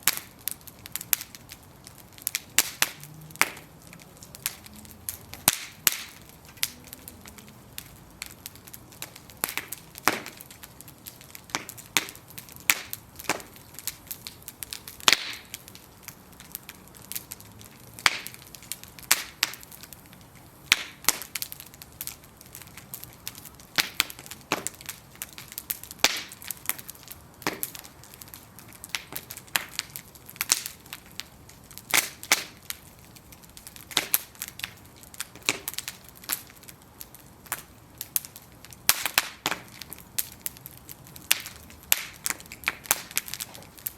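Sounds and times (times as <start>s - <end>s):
bonfire crackling and popping: 0.0s - 43.9s.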